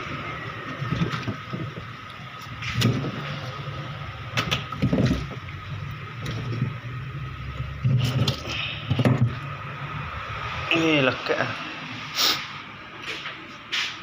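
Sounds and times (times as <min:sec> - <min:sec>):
ice machine humming: 0:00.0 - 0:10.1
knocks and clatter: 0:04.4 - 0:05.4.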